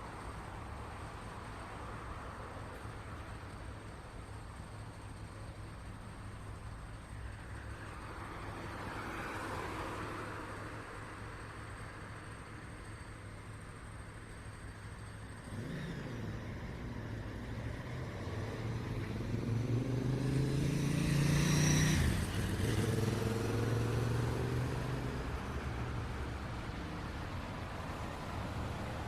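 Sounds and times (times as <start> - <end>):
traffic hum: 0.0 - 29.0
vehicle driving past: 15.4 - 26.4.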